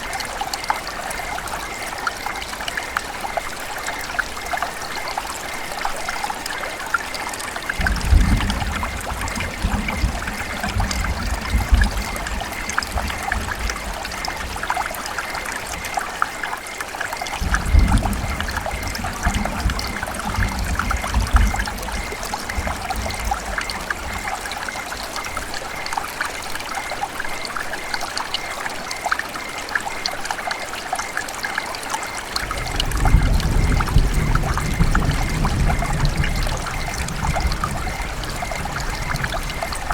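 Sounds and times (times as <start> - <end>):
river water trickling and splashing: 0.0 - 39.9.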